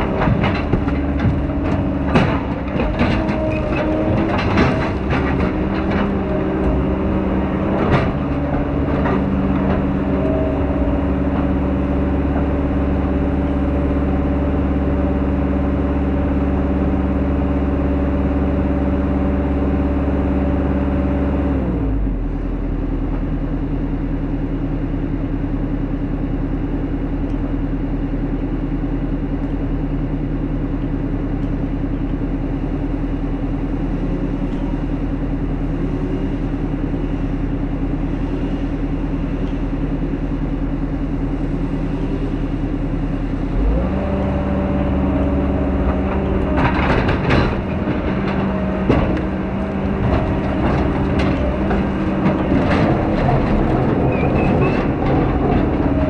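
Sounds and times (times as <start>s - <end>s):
machine knocks and cracks: 0.0s - 7.1s, 45.9s - 56.0s
heavy diesel machine engine: 0.0s - 56.0s.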